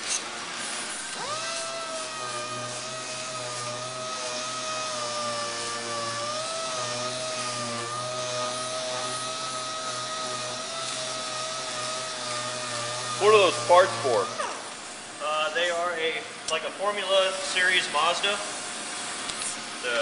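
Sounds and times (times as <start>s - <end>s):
air sander whining on steel: 0.0s - 15.2s.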